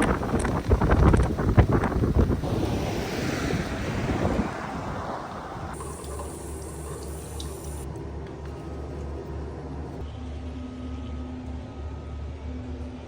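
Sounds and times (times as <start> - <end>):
wind on microphone: 0.0 - 5.8.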